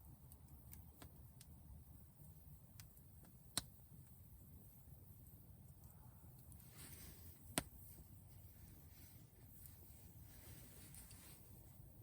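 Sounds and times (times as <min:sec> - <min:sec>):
wood fire ticking: 0:00.0 - 0:06.7
faint low rumble: 0:00.0 - 0:12.0
soft hiss: 0:00.0 - 0:12.0.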